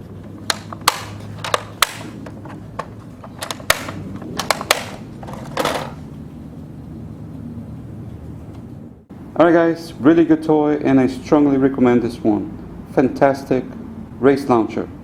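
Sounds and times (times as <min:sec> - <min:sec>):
plastic case clicking: 0:00.3 - 0:05.9.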